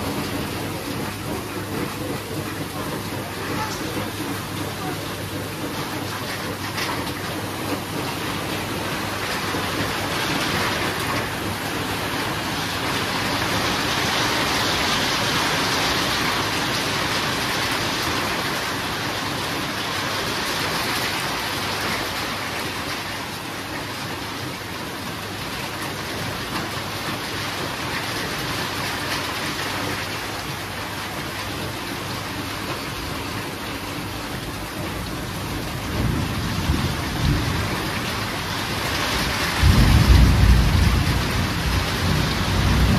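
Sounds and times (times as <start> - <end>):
heavy rain falling: 0.0 - 42.9
thunder rumbling: 34.4 - 42.9.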